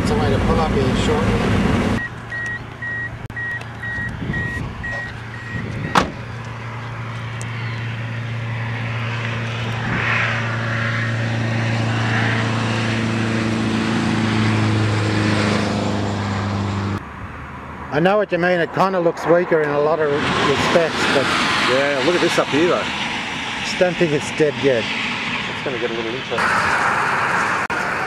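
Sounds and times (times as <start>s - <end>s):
car engine humming: 0.0s - 18.8s
car warning beeper: 2.0s - 6.2s.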